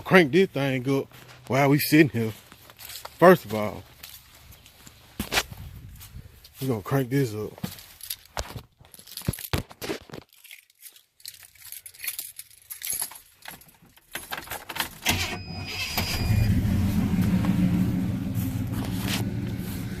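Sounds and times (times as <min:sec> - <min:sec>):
keys jangling: 0:10.3 - 0:15.0
truck engine starting and idling: 0:15.0 - 0:20.0.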